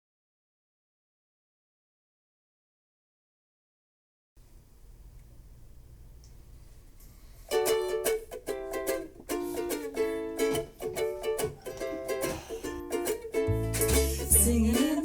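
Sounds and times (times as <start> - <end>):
strummed string instrument chords: 7.5 - 15.0.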